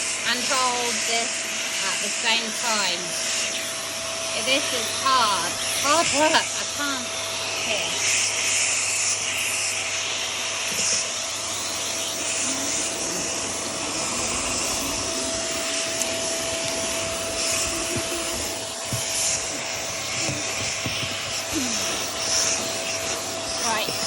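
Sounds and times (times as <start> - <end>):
vacuum cleaner running: 0.0 - 24.0
vacuum tool knocking: 11.8 - 24.0.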